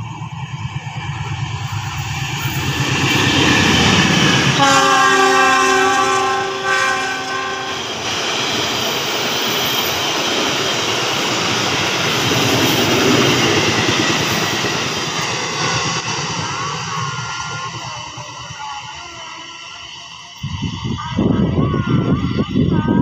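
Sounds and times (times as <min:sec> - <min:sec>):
train coaches rumbling on rails: 0:00.0 - 0:23.0
locomotive horn chord: 0:04.5 - 0:08.0.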